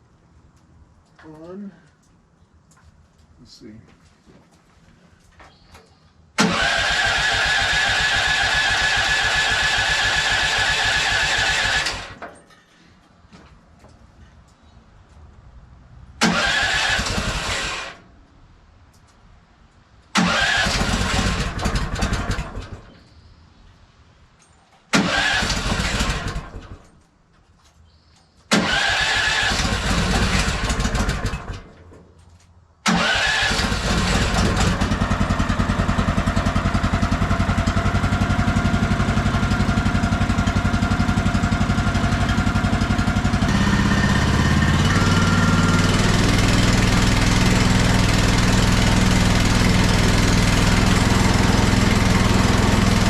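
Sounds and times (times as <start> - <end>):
gas engine starting and running: 6.4 - 12.4, 16.2 - 18.1, 20.1 - 23.1, 24.9 - 27.0, 28.5 - 32.0, 32.8 - 53.0.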